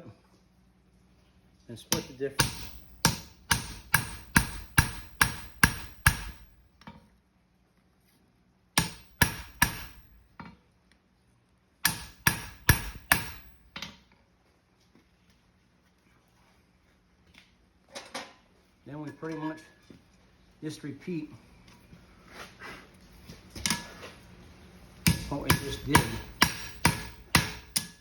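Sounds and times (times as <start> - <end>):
hammer striking steel on anvil: 1.9 - 6.5, 8.8 - 10.2, 11.8 - 13.8, 25.0 - 28.0.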